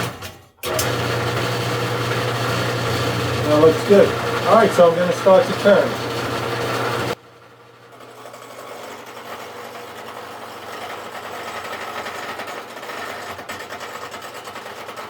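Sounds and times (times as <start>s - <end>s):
tool cutting spinning wood: 0.0s - 7.2s, 7.9s - 15.0s
wood lathe humming: 0.6s - 7.2s.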